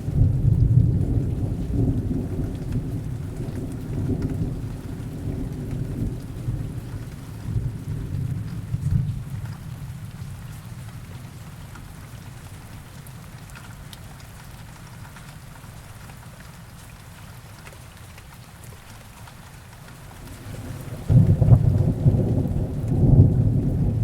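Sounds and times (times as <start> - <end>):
thunder rumble: 0.0 - 9.9, 20.1 - 24.0
heavy rain: 0.0 - 24.0
raindrop ticks: 0.3 - 24.0.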